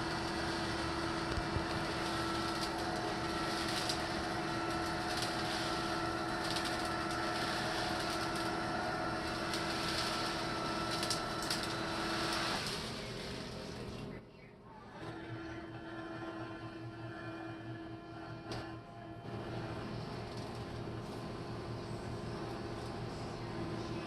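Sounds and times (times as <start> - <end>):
motor humming: 0.0 - 14.2.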